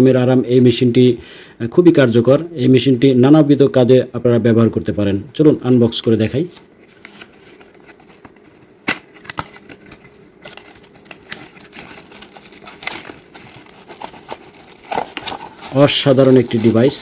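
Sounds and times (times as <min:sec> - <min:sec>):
cardboard packaging rustling: 0:06.8 - 0:17.0.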